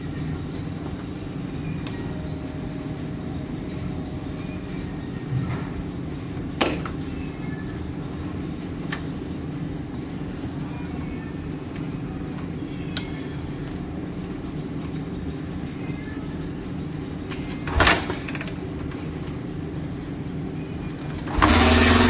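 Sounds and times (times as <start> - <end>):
motorcycle engine running: 21.3 - 22.0.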